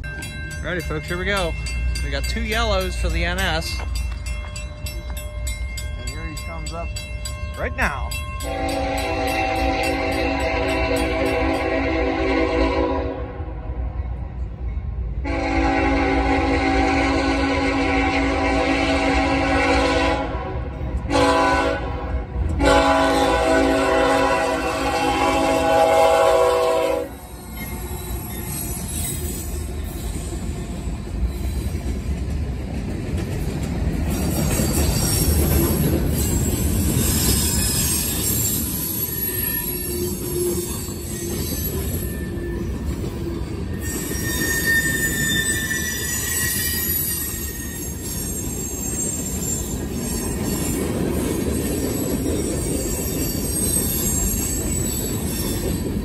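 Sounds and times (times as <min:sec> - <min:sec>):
freight train wheels rumbling: 0:00.0 - 0:56.0
wheel squeals: 0:27.3 - 0:32.0, 0:34.1 - 0:56.0.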